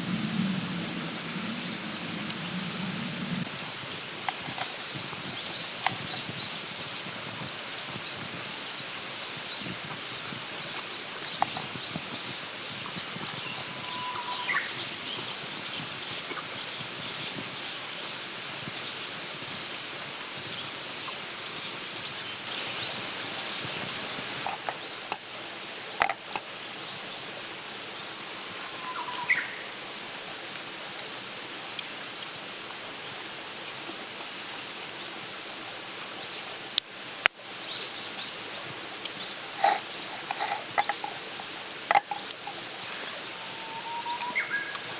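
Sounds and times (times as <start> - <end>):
steady hiss: 0.0 - 44.9
campfire crackling and popping: 3.4 - 13.9, 18.1 - 27.2, 38.9 - 43.3.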